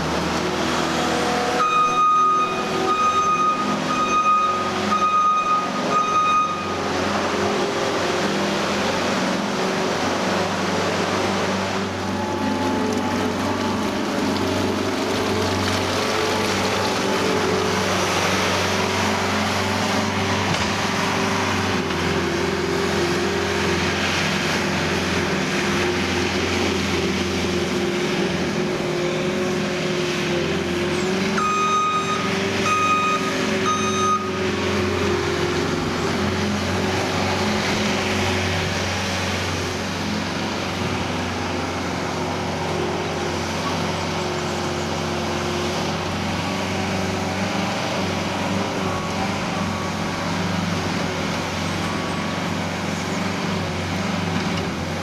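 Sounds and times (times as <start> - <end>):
loader diesel engine running: 0.0 - 55.0
short electronic beeps: 1.6 - 6.8, 31.4 - 34.4.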